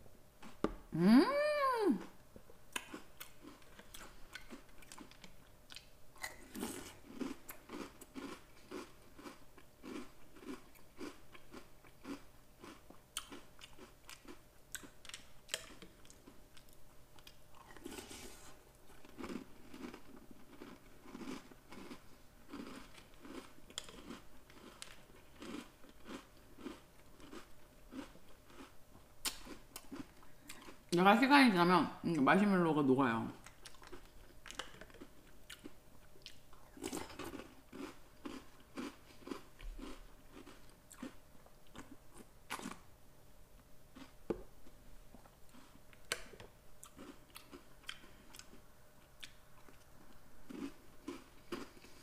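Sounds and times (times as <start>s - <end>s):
crunching cereal: 6.2s - 16.6s, 17.2s - 28.7s, 33.7s - 42.8s, 50.5s - 52.0s.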